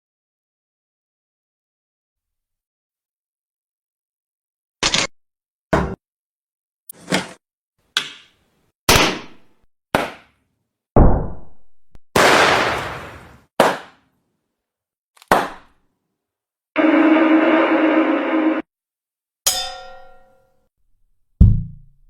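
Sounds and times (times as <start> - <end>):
sharp bangs: 12.2 - 13.3.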